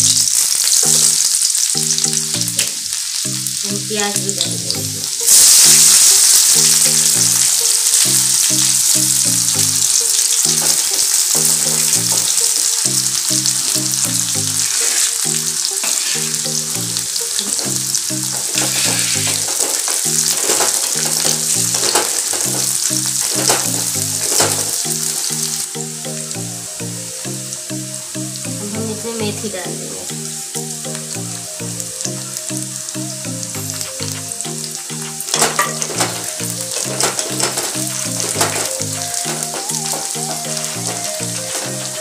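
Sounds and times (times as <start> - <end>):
background music melody: 0.0 - 42.0
onions sizzling in hot oil: 0.0 - 42.0
wooden spatula scraping and stirring: 14.6 - 15.2, 17.4 - 24.8.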